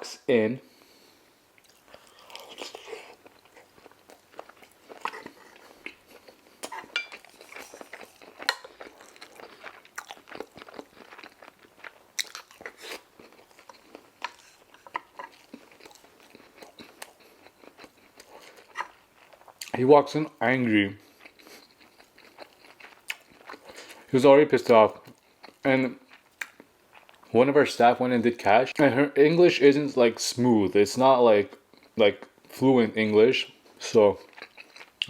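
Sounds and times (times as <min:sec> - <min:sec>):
person chewing with mouth smacking: 0:01.6 - 0:19.8, 0:21.0 - 0:24.1, 0:33.7 - 0:35.0.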